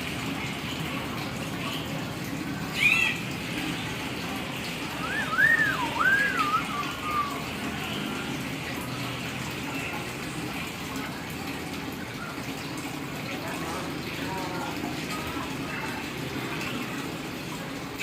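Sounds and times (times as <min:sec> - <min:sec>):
bird whistling notes: 0:05.0 - 0:07.5.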